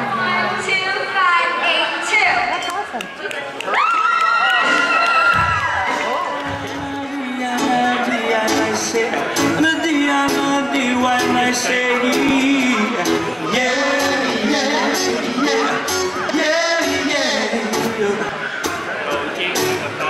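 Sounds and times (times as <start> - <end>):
live band playing: 5.7 - 20.0
person singing: 6.1 - 18.5.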